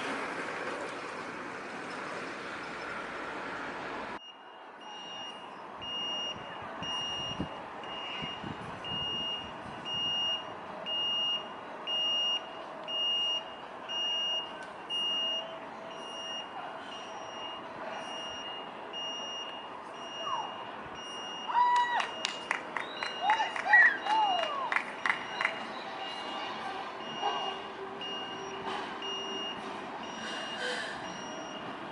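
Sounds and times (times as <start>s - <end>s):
high-pitched electronic warning beeps: 4.2s - 21.5s, 25.0s - 31.7s.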